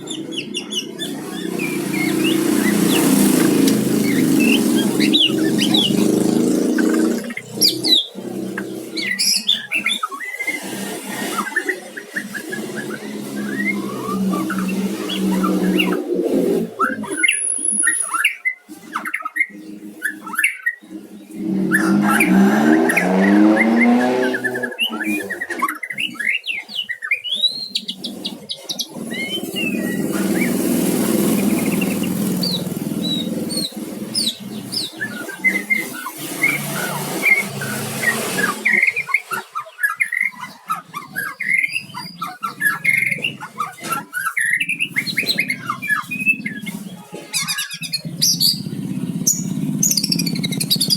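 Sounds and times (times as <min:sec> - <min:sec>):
vehicle engine hum: 0:00.0 - 0:17.0, 0:20.9 - 0:25.5, 0:29.0 - 0:39.1, 0:47.8 - 0:50.9
bird singing chirps and whistles: 0:00.0 - 0:50.9.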